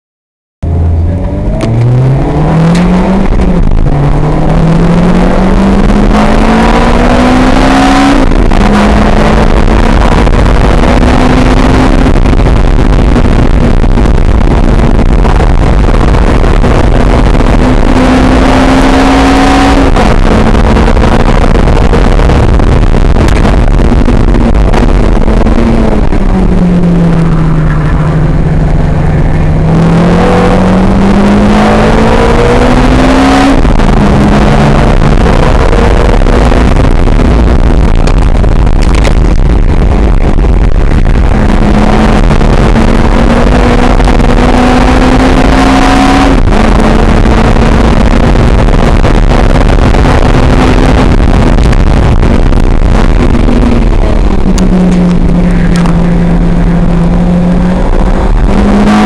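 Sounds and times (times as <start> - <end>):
sports car engine accelerating: 0.6 - 59.0
wind and road noise: 0.6 - 59.0.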